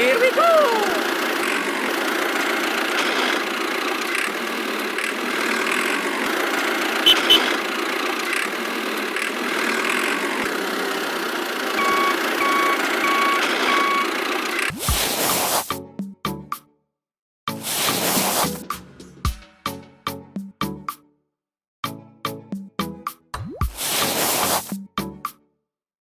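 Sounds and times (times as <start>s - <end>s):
small motor droning: 0.0s - 15.7s
short reversing beeps: 7.0s - 7.5s, 11.8s - 14.2s.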